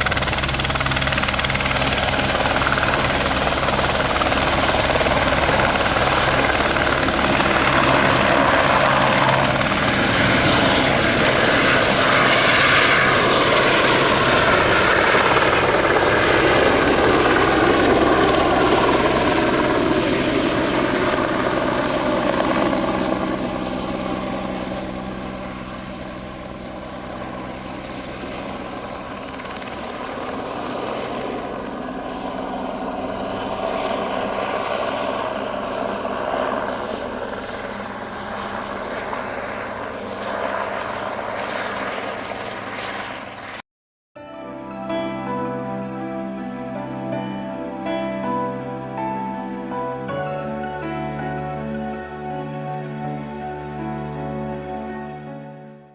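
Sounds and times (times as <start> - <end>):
high turbine whine: 0.0 - 43.4
helicopter rotor noise: 0.0 - 43.6.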